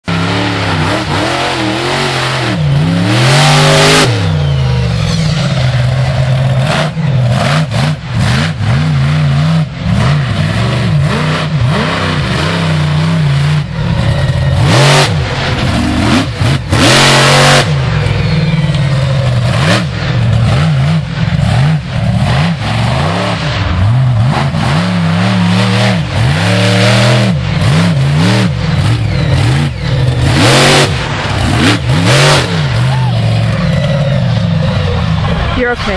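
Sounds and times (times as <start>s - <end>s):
loud rushes of noise: 0.0s - 35.9s
monster truck engine revving: 0.0s - 35.9s.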